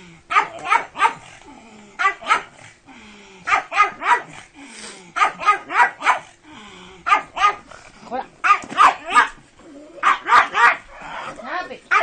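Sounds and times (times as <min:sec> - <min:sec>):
dog barking: 0:00.3 - 0:01.3, 0:02.0 - 0:02.5, 0:03.5 - 0:04.4, 0:05.2 - 0:06.3, 0:07.1 - 0:07.7, 0:08.4 - 0:09.4, 0:10.0 - 0:10.9.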